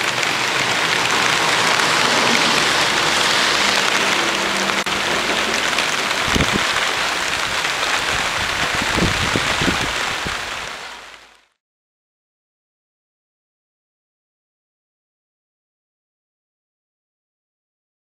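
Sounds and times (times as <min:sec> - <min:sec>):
steady rain: 0:00.0 - 0:11.6.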